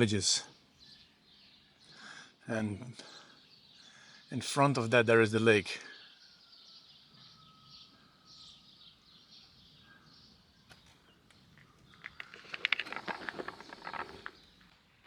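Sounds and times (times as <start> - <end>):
distant birds: 0.0 - 15.0
crackling and rustling: 10.7 - 15.0.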